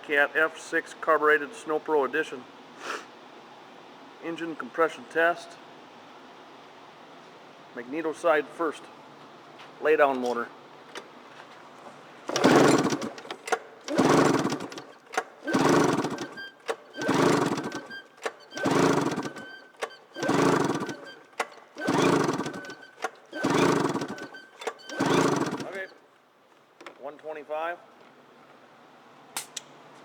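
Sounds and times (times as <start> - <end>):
engine cranking without firing: 12.2 - 26.0.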